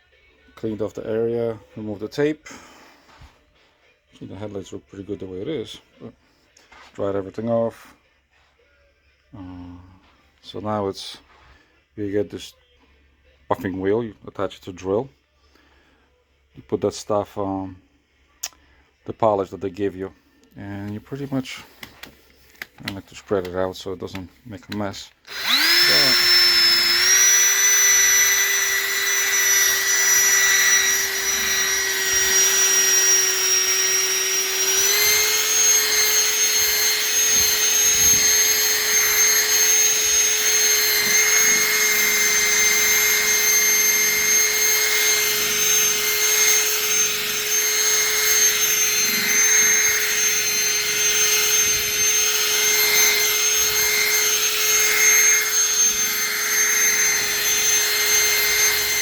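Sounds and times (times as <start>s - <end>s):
electric drill motor whine: 25.2s - 59.0s.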